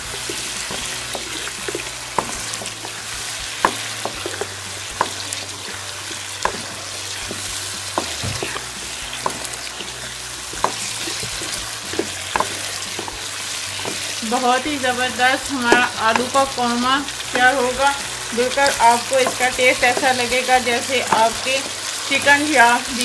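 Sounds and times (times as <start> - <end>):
spatula knocking and scraping pan: 0.0 - 22.8
food sizzling in a pan: 0.0 - 23.0.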